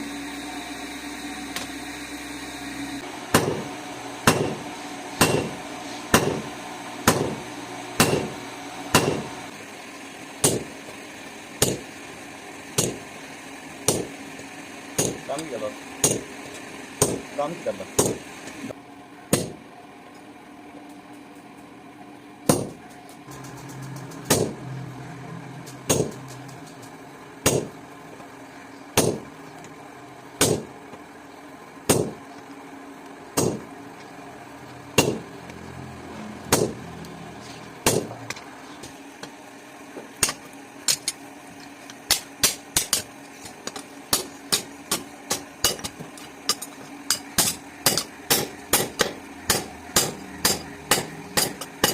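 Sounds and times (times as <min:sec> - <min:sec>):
hammer striking steel: 0:03.3 - 0:09.4, 0:10.4 - 0:10.7, 0:11.6 - 0:11.9, 0:12.8 - 0:13.0, 0:13.8 - 0:14.2, 0:15.0 - 0:15.4, 0:16.0 - 0:16.3, 0:17.0 - 0:17.3, 0:18.0 - 0:18.2, 0:19.3 - 0:19.6, 0:22.5 - 0:22.8, 0:23.7 - 0:24.6, 0:25.6 - 0:26.4, 0:27.4 - 0:27.8, 0:29.0 - 0:29.3, 0:30.4 - 0:30.7, 0:31.9 - 0:32.2, 0:33.4 - 0:33.7, 0:35.0 - 0:35.3, 0:36.5 - 0:36.8, 0:37.8 - 0:38.2, 0:42.1 - 0:51.9.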